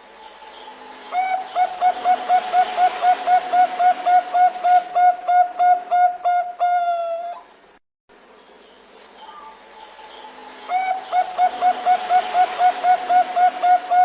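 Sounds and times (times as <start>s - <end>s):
dove cooing: 1.1s - 7.5s, 10.7s - 14.0s.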